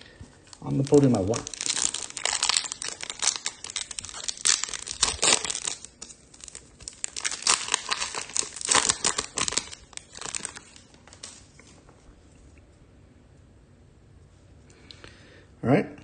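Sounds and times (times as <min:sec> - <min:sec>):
foil wrapper tearing and crinkling: 0:00.5 - 0:11.4.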